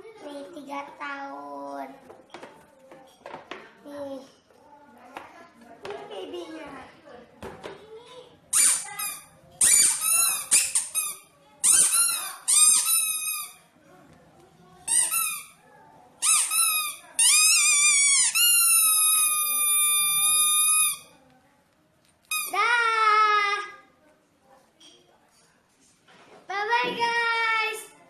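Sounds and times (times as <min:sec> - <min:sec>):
rubber squeeze toy squeaking: 0:08.5 - 0:13.6, 0:14.9 - 0:15.6, 0:16.2 - 0:21.1, 0:22.3 - 0:22.6.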